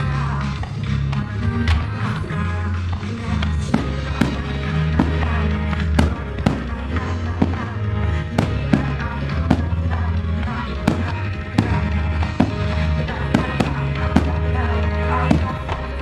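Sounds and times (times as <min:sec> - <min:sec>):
pop song playing: 0:00.0 - 0:16.0
fireworks bursting: 0:03.6 - 0:16.0.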